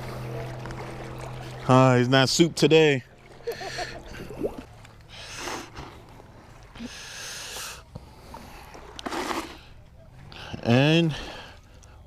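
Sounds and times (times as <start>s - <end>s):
water splashing: 0.0s - 7.2s.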